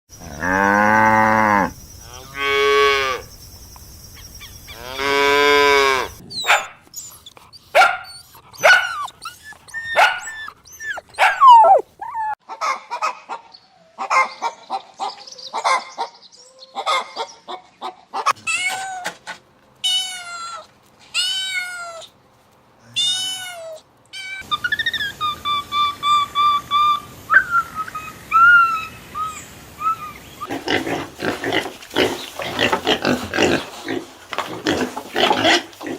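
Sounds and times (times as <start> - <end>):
cow mooing: 0.2 - 3.2
rising and falling animal calls: 8.1 - 13.0.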